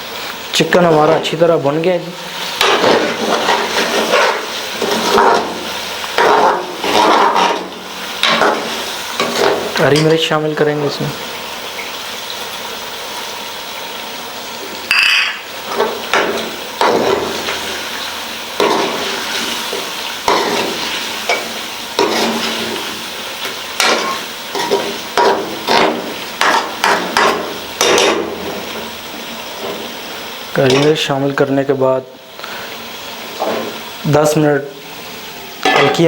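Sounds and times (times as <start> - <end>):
chicken sizzling in a pan: 0.0 - 36.0
spoon scraping a pan: 2.6 - 10.2, 14.9 - 17.8, 18.6 - 28.2.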